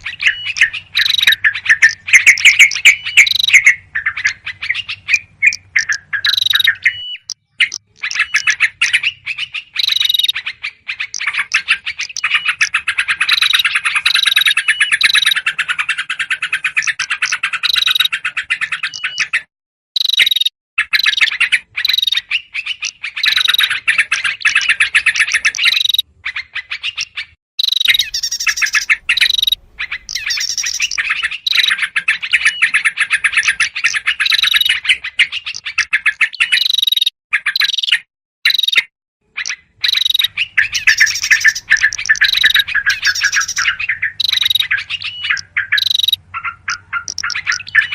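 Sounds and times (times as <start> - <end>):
bulbuls chattering calls: 0.0 - 19.5, 26.9 - 36.5, 39.4 - 47.9
small birds calling: 0.0 - 47.9.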